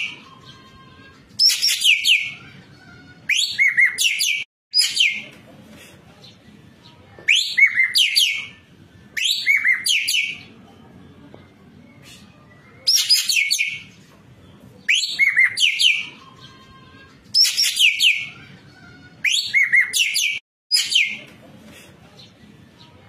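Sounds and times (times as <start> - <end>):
bird singing whistled notes: 1.4 - 2.4, 9.2 - 10.5, 12.5 - 13.9, 14.9 - 16.5.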